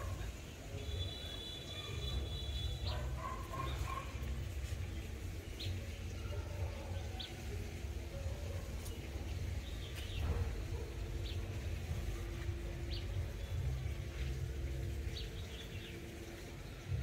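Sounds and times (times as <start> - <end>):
steady low rumble: 8.6 - 17.0.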